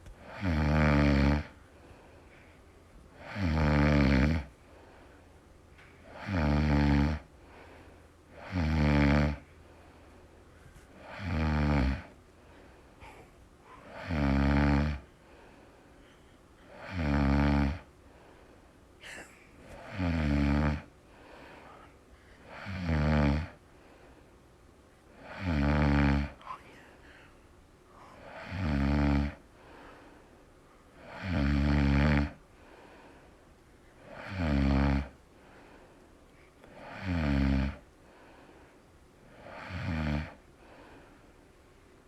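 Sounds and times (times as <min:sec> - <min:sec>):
quiet breaths: 0:00.0 - 0:42.0
bird making snore-like sounds: 0:00.2 - 0:01.6, 0:03.2 - 0:04.5, 0:06.1 - 0:07.3, 0:08.4 - 0:09.4, 0:11.0 - 0:12.1, 0:13.8 - 0:15.1, 0:16.7 - 0:17.9, 0:19.8 - 0:20.9, 0:22.5 - 0:23.6, 0:25.2 - 0:26.4, 0:28.2 - 0:29.4, 0:31.0 - 0:32.4, 0:34.1 - 0:35.2, 0:36.8 - 0:37.8.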